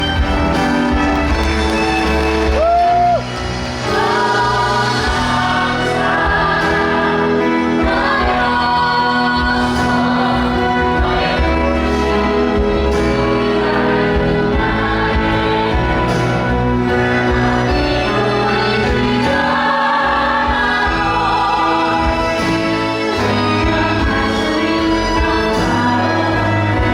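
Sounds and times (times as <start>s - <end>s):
cast singing with live band: 2.6s - 26.9s.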